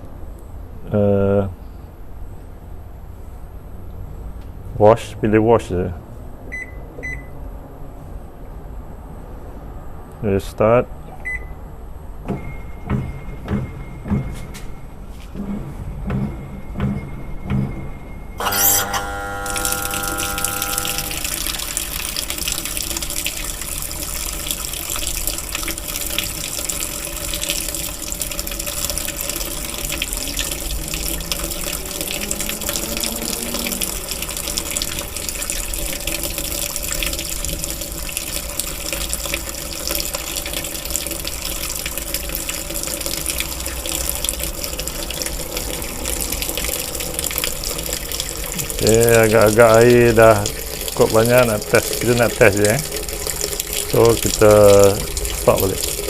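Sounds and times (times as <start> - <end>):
water pouring into washing machine: 18.4 - 56.0.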